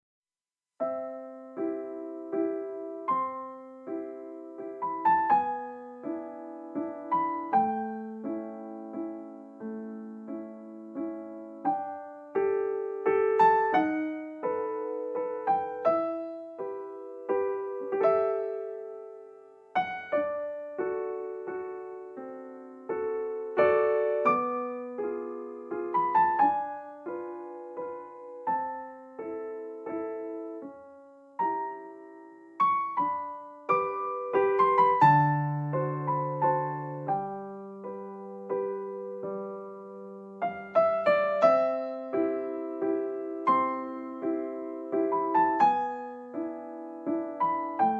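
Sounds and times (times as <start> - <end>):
gentle piano music: 0.8 - 47.9.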